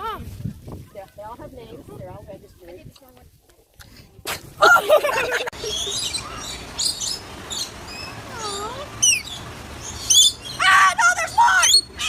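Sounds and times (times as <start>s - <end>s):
high-pitched animal chirps and squeaks: 5.6s - 12.0s.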